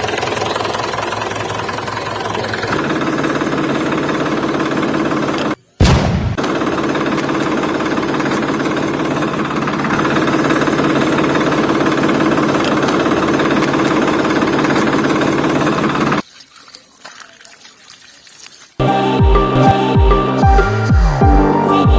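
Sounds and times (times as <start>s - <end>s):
engine running with rough clatter: 0.0s - 16.2s.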